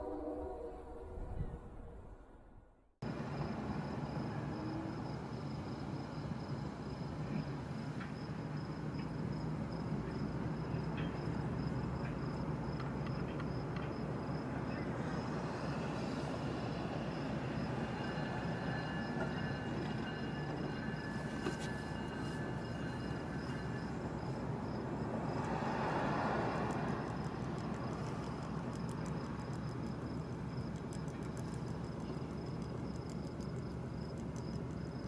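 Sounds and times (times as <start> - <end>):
freight train wheels rumbling: 3.1 - 35.0
faint high steady tones: 14.6 - 25.4.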